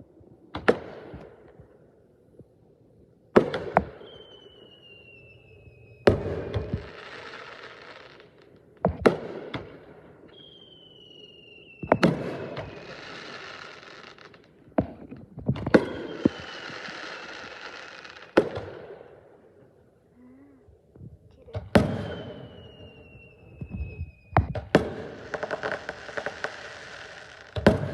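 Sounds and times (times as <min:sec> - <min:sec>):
fireworks bangs: 0:03.3 - 0:19.2, 0:21.4 - 0:27.9
falling whistle: 0:04.0 - 0:07.9, 0:10.3 - 0:14.2, 0:15.7 - 0:18.3, 0:21.7 - 0:27.5
crackling fizz: 0:25.1 - 0:27.6.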